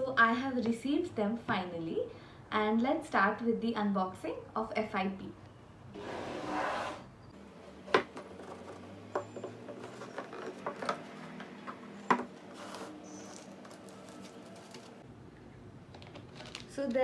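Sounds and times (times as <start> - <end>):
packaging rustling: 7.4 - 15.0, 15.9 - 16.8.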